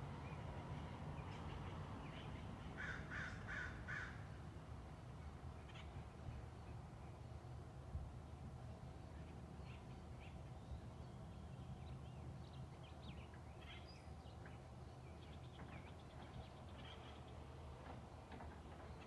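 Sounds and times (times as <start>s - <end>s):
wild birds chirping: 8.3s - 19.0s.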